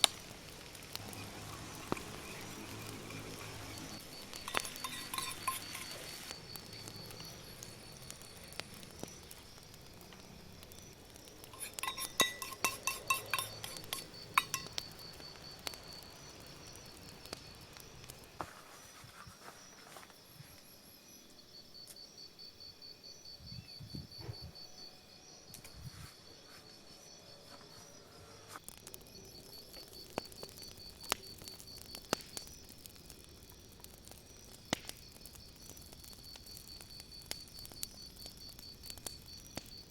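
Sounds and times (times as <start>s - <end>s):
insects trilling: 0.0s - 39.9s
sharp clinks and taps: 11.5s - 14.8s.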